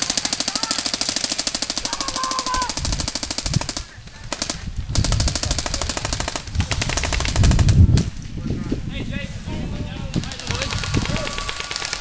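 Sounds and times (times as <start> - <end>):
airsoft guns firing full auto: 0.0 - 7.8, 10.2 - 12.0.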